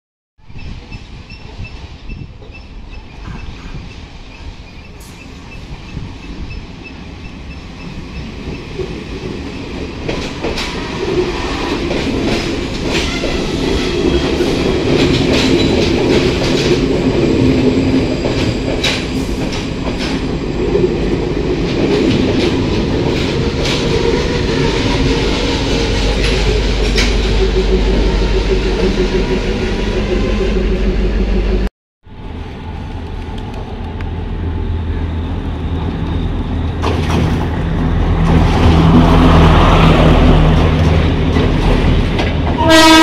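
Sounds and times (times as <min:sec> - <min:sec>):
passenger train rumbling past: 0:00.4 - 0:43.0
wheels clacking over rail joints: 0:07.2 - 0:27.4, 0:35.8 - 0:43.0.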